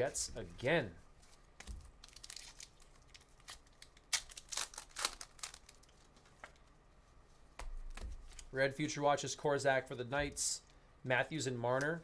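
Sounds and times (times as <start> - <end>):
foil wrapper tearing and crinkling: 2.0 - 6.1.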